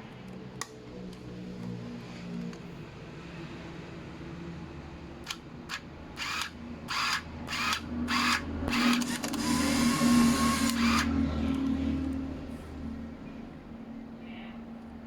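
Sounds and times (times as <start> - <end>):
small motor whirring: 5.3 - 11.7.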